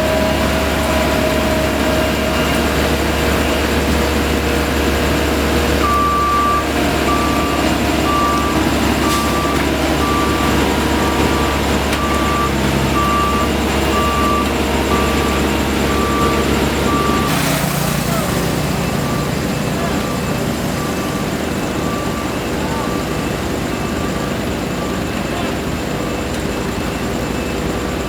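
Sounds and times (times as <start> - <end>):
heavy machine engines running: 0.0 - 28.0
reversing alarm beeping: 0.0 - 28.0.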